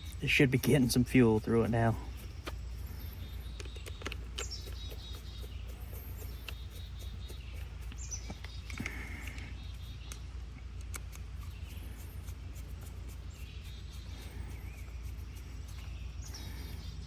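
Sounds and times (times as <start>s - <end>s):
bird chirps: 0.0s - 10.3s, 11.1s - 17.0s
low steady hum: 0.0s - 17.0s
small clicks and taps: 3.6s - 5.6s.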